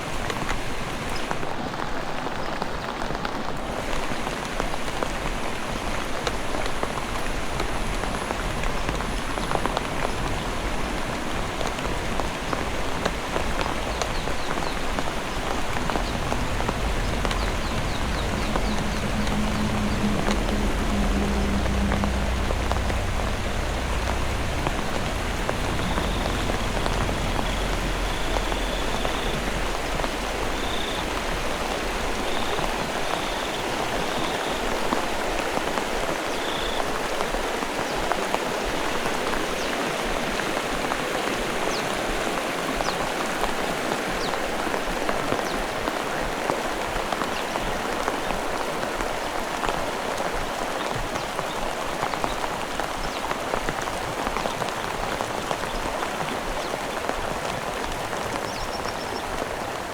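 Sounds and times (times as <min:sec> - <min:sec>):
heavy rain falling: 0:00.0 - 0:59.9
low rumble: 0:07.6 - 0:33.6.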